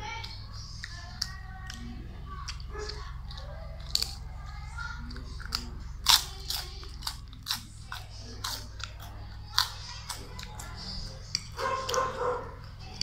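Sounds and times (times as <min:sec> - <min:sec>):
steady low hum: 0:00.0 - 0:13.0
pork rind crunching: 0:00.2 - 0:13.0.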